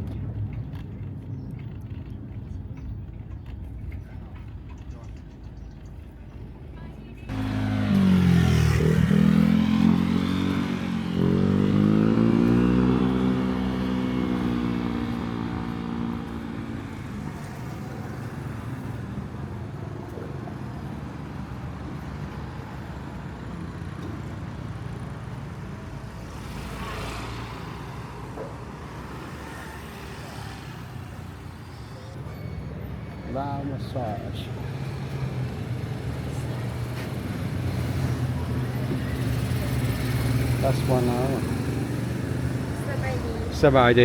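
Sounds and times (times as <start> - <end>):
vehicle engine revving: 7.3 - 17.4.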